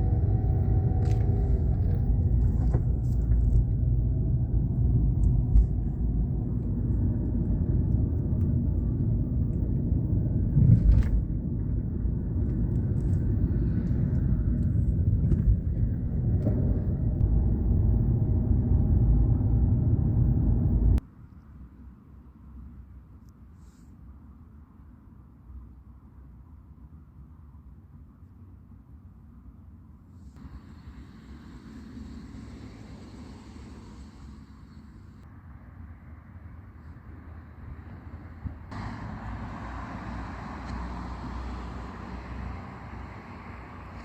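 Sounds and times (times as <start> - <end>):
vehicle rumbling: 0.0 - 21.2, 30.2 - 44.0.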